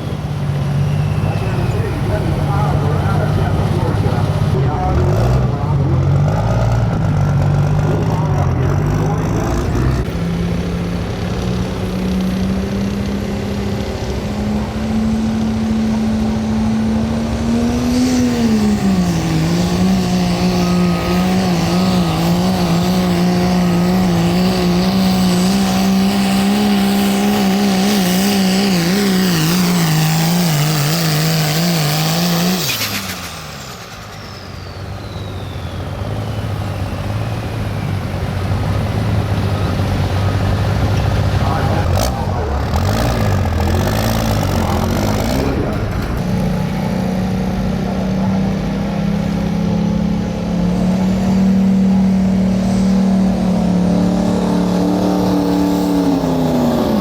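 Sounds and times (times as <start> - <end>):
diesel engine at full throttle: 0.0 - 57.0
turbo whistle: 32.7 - 37.5.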